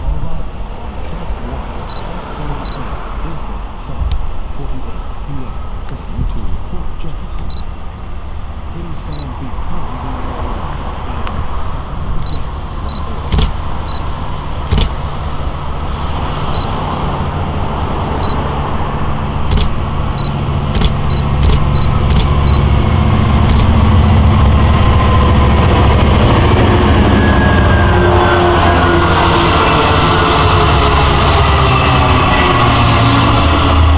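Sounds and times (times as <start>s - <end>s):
diesel locomotive engine drone: 0.0s - 33.9s
sharp clicks: 12.2s - 14.1s, 14.7s - 15.0s, 19.4s - 22.7s, 23.4s - 23.8s.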